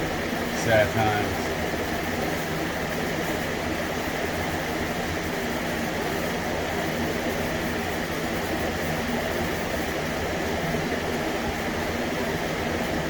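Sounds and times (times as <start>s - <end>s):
constant hiss: 0.0s - 1.8s
machine hum: 0.0s - 2.0s.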